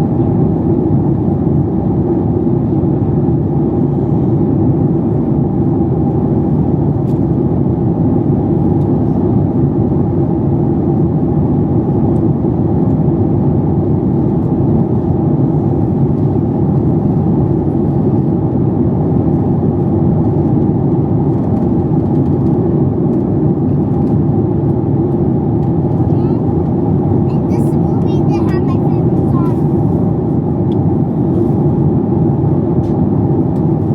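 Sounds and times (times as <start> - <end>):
airliner cabin drone: 0.0 - 33.9.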